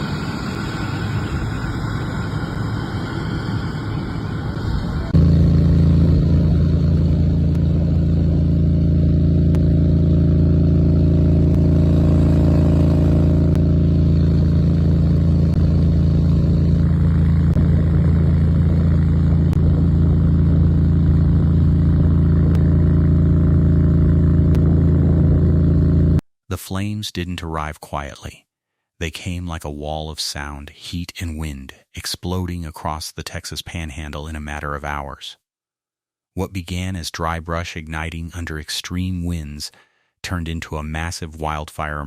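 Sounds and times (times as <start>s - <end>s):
rushing noise: 0.0s - 8.6s
loud low rumble: 0.0s - 26.2s.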